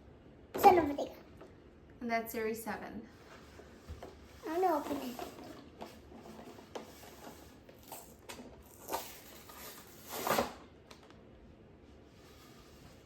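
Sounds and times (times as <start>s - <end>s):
rustling scrapes: 3.1s - 10.6s, 12.1s - 13.0s.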